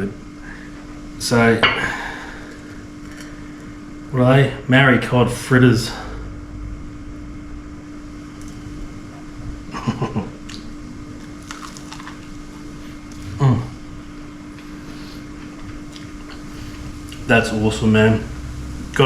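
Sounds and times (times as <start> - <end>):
low appliance hum: 0.0 - 19.0
crunchy food bitten and chewed: 10.5 - 13.4
person humming mm: 13.2 - 13.8.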